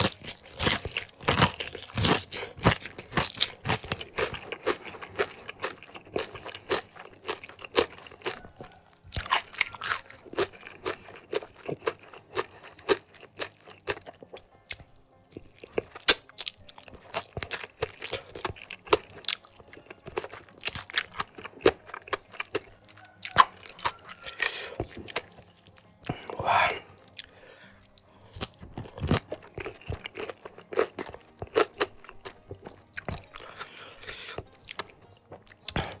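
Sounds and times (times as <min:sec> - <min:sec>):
chewing crispy fried chicken: 0:00.0 - 0:36.0
wet mouth sounds: 0:26.0 - 0:36.0.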